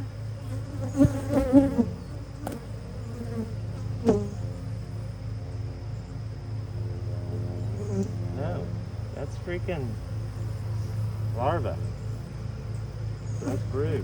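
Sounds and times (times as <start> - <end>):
single bees whining past: 0.0 - 5.2, 6.7 - 9.1, 12.1 - 14.0
bees buzzing: 0.0 - 14.0.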